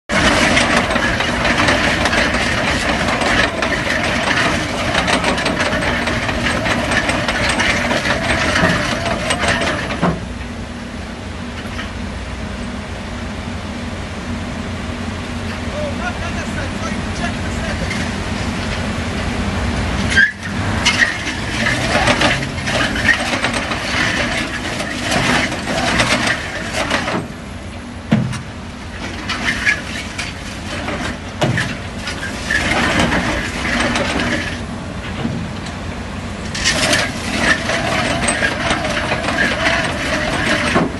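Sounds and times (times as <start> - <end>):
drilling rig engine humming: 0.1 - 40.9
harsh mechanical noise: 0.1 - 40.9
sharp knocks: 28.1 - 28.5.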